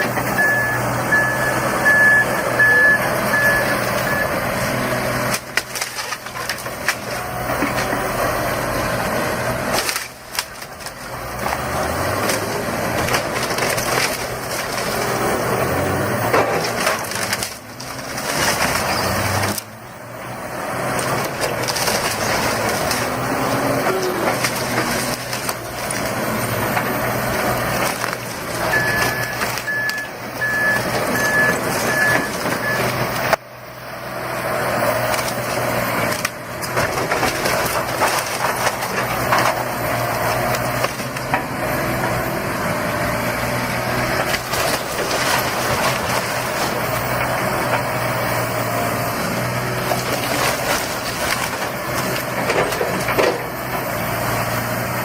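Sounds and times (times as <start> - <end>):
demolition debris crunching: 0.0 - 55.0
heavy machinery running: 0.0 - 55.0
reversing alarm beeps: 0.3 - 4.4, 28.7 - 32.9.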